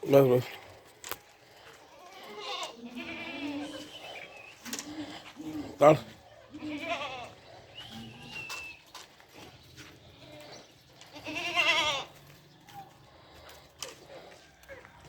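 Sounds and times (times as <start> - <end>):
goats bleating: 1.6 - 8.6, 9.8 - 13.0.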